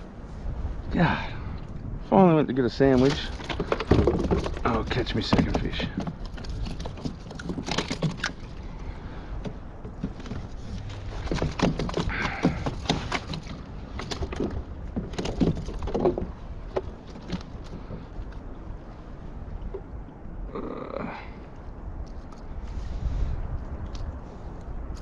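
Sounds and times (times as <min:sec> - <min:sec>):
fishing tackle clicks and rustles: 0:02.7 - 0:19.2, 0:22.0 - 0:22.9.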